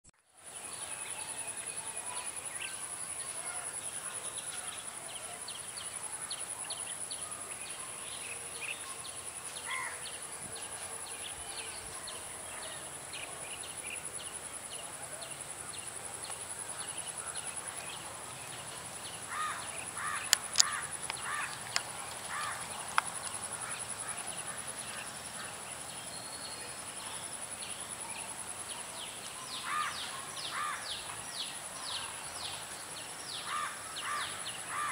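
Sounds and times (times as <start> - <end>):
high insect drone: 0.4 - 34.9
loud bird calls: 19.1 - 26.6, 29.4 - 31.2, 33.4 - 34.9
sharp clicks: 20.2 - 23.4.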